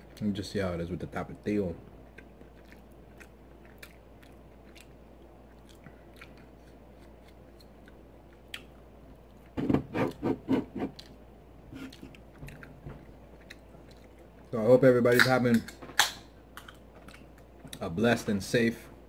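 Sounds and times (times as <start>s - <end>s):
chewing mouth clicks: 2.1s - 9.5s, 13.4s - 14.5s, 16.0s - 17.8s.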